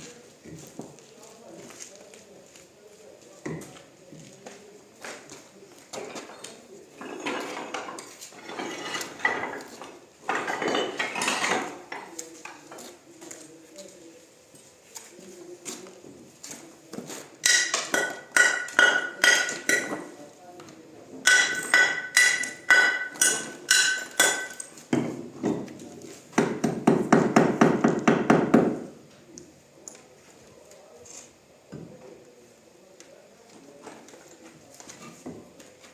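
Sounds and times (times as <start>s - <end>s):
hand tool scraping stone: 7.0s - 11.7s
hammer striking stone: 17.4s - 20.1s, 21.3s - 25.1s.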